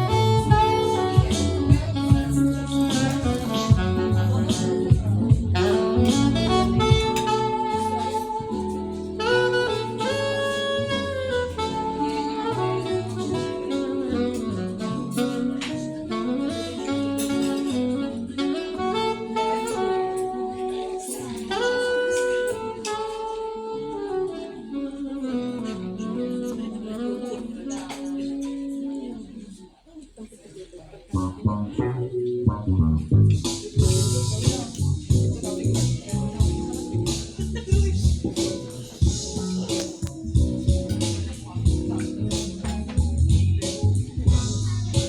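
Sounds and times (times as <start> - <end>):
saxophone blues melody: 0.0 - 29.5, 31.2 - 45.0
low instrumental backing: 0.0 - 29.7, 31.1 - 45.0.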